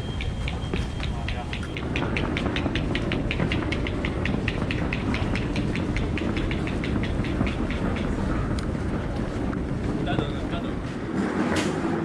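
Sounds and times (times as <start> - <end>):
steady low rumble: 0.0 - 12.0
rapid even clicking: 0.1 - 9.2.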